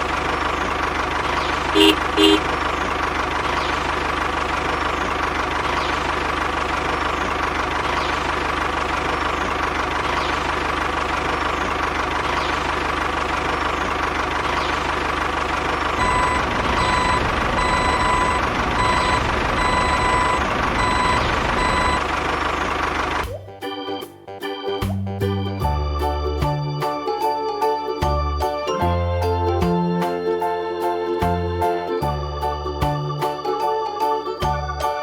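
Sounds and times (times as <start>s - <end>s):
heavy vehicle engine running: 0.0s - 23.4s
reversing alarm beeping: 16.0s - 22.2s.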